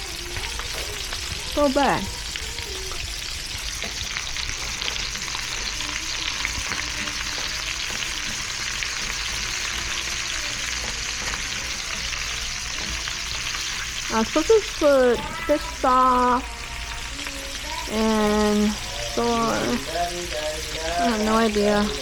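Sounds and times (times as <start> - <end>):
food sizzling in a pan: 0.0 - 22.0
stirring clicks and scrapes: 2.2 - 15.5.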